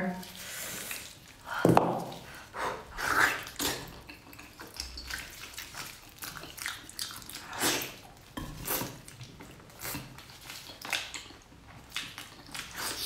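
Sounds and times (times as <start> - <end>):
wet chewing and lip-smacking: 0.3 - 13.0.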